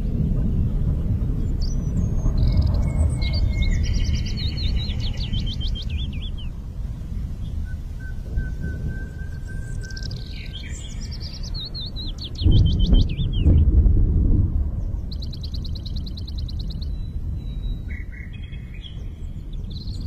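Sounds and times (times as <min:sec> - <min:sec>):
bird song with trill: 0:00.0 - 0:13.9, 0:14.6 - 0:20.0
low rumble: 0:00.0 - 0:20.0
long steady whistle: 0:07.7 - 0:10.3.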